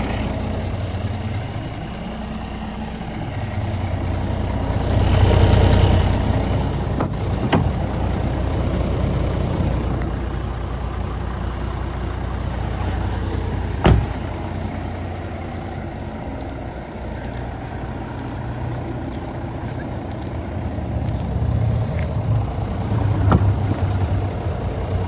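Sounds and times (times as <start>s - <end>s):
diesel truck engine running: 0.0s - 25.0s
loud knock: 13.8s - 14.2s.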